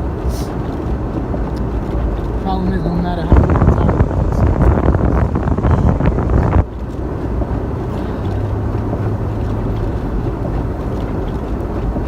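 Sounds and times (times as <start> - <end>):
engine and tyres rumbling: 0.0 - 12.0
wind buffeting microphone: 0.0 - 12.0.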